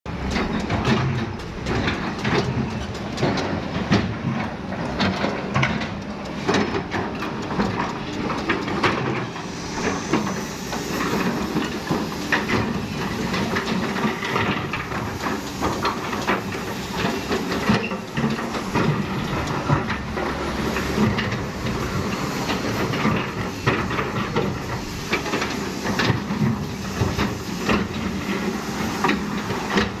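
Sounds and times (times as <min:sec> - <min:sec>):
excavator engine hum: 0:00.1 - 0:30.0
hydraulic hiss: 0:09.3 - 0:19.3, 0:20.4 - 0:29.8.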